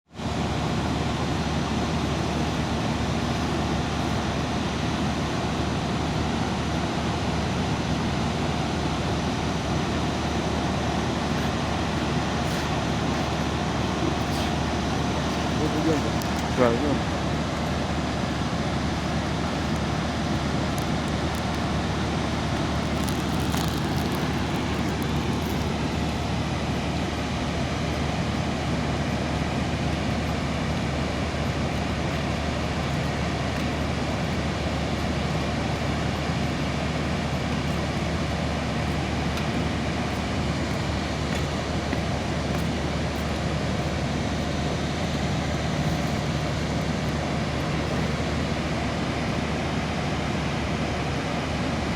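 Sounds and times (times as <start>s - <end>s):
water pouring over waterfall: 18.8s - 26.7s.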